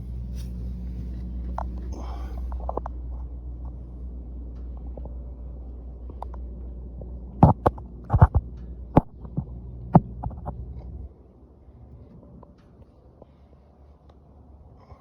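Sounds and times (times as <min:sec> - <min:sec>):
sharp clicks and knocks: 0:07.4 - 0:10.6.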